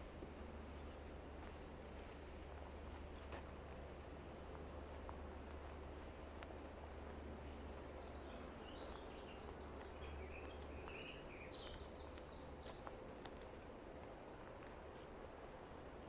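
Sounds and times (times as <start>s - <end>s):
songbird chirping: 7.4s - 13.4s.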